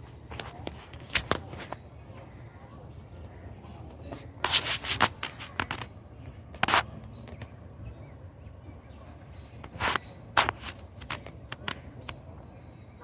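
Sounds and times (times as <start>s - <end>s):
scraping crunching noises: 0.0s - 7.5s, 9.5s - 12.4s.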